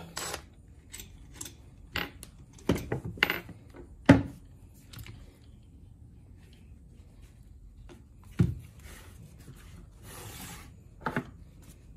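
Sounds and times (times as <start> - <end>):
metal parts clicking and knocking: 0.2 - 3.8.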